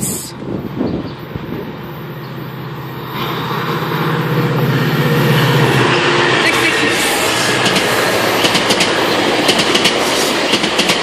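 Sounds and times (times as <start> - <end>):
diesel locomotive engine drone: 0.0 - 11.0
wheels on rails: 2.2 - 11.0.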